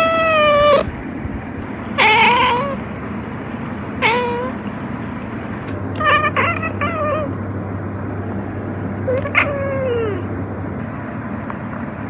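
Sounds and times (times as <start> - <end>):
cat meowing: 0.0 - 0.9, 2.0 - 2.8, 4.0 - 4.6, 6.0 - 7.4, 9.0 - 10.3
steady background noise: 0.0 - 12.0.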